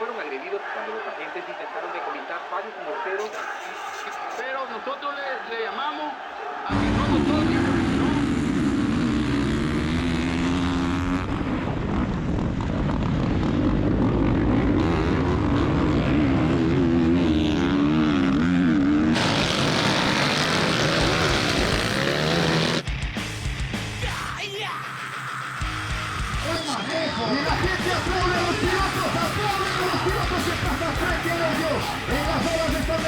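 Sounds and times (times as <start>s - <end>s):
motocross bike engines revving: 6.7s - 23.0s, 24.9s - 33.0s.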